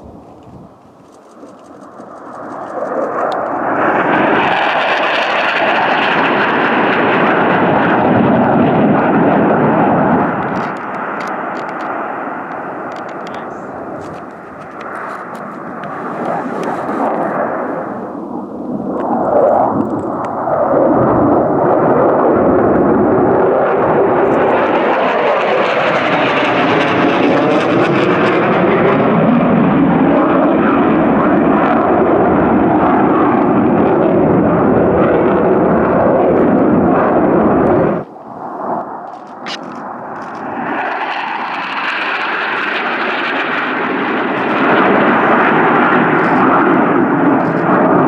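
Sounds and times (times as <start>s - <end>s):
fighter jet roaring past: 0.0s - 48.0s.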